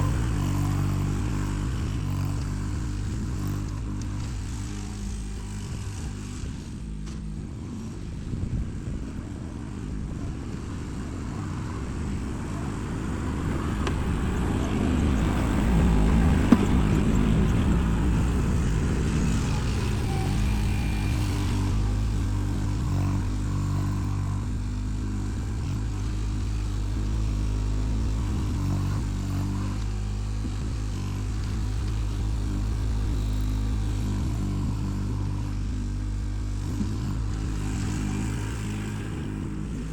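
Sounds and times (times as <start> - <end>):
earth-moving machine engine: 0.0 - 39.9.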